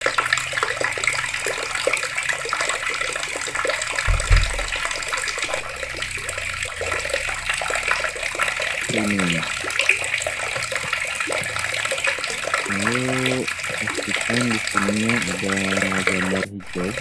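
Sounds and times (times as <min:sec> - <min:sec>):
water running from taps: 0:00.0 - 0:17.0
low thump: 0:04.0 - 0:07.0.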